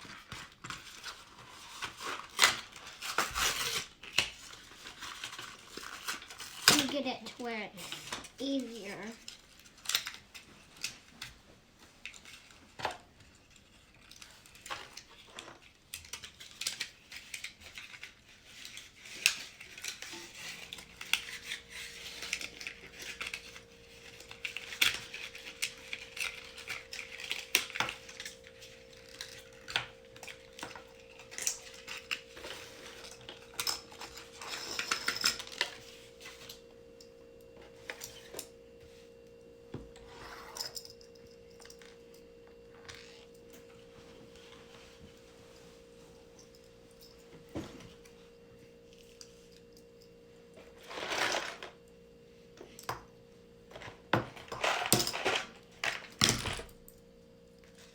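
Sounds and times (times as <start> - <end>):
steady hum: 19.8 - 57.9.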